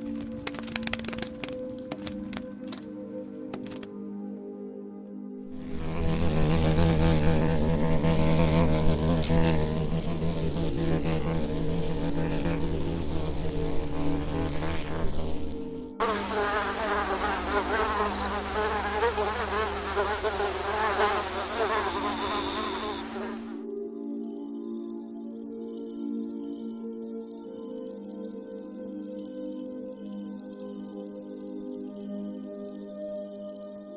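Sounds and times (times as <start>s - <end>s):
insects buzzing: 16.0s - 23.6s.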